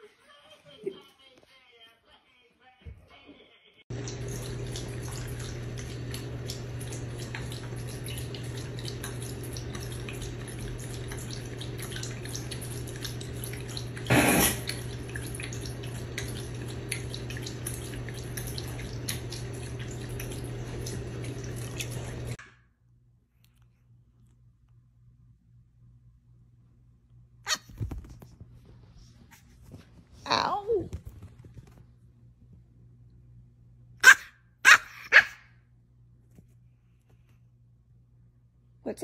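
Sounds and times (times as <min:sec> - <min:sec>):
water dripping and trickling: 0:03.9 - 0:22.4.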